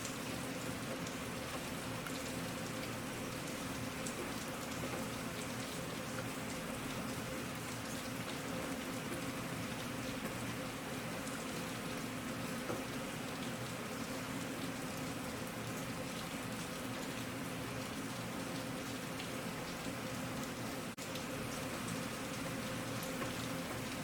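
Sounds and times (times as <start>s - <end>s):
raindrops ticking: 0.0s - 8.4s
steady rain falling: 0.0s - 24.0s.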